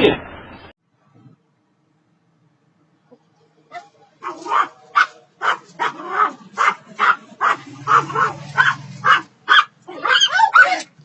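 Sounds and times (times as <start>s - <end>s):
dog barking rapidly: 3.8s - 11.0s.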